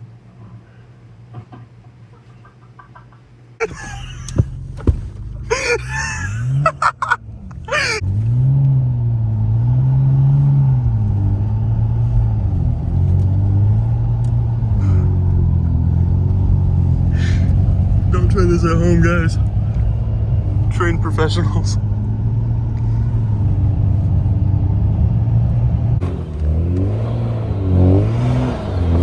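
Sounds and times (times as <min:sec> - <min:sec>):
car engine pulling hard: 0:03.6 - 0:29.0.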